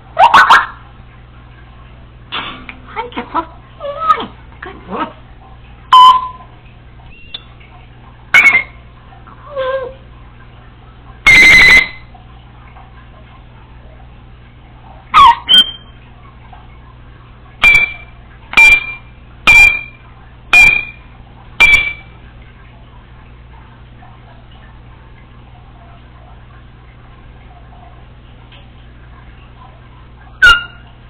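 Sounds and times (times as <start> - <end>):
parrot whistling beeps and chirps: 5.9 - 6.4, 7.1 - 7.5, 8.4 - 8.8, 11.3 - 12.0, 15.2 - 16.0, 17.6 - 18.0, 18.6 - 21.0, 21.6 - 22.1, 30.4 - 30.9.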